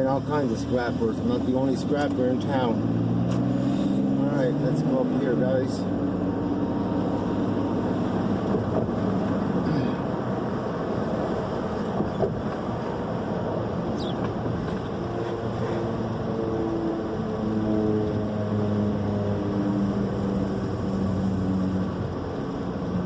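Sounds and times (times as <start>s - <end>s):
road noise: 0.0s - 23.0s
vehicle engine hum: 0.0s - 23.0s.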